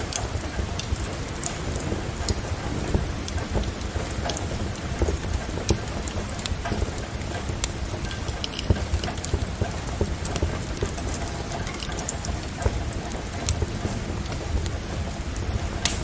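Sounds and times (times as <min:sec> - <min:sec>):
rain hissing: 0:00.0 - 0:16.0
wood fire crackling and popping: 0:00.0 - 0:16.0.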